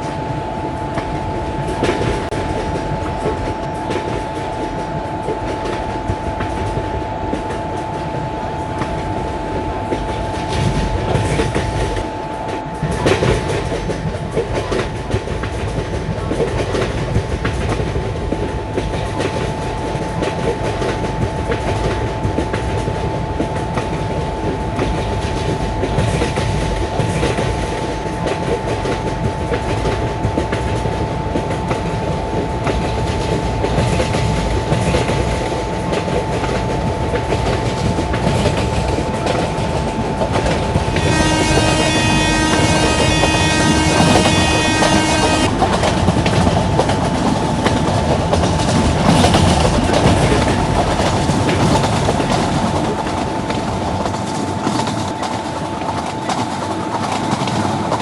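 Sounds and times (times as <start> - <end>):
steady high whine: 0.0 - 58.0
train wheels clattering on rail joints: 0.0 - 58.0.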